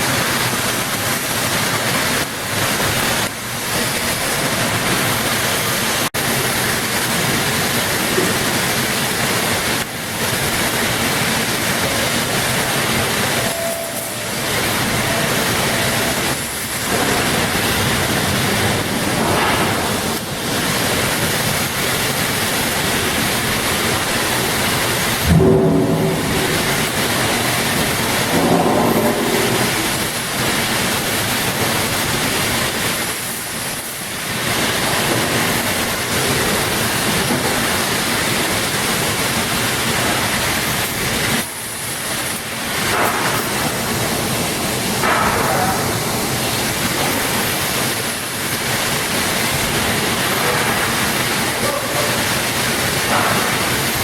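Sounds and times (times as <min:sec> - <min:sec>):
loud rushing noise: 0:00.0 - 0:54.0
brief ringing sound: 0:13.4 - 0:14.4.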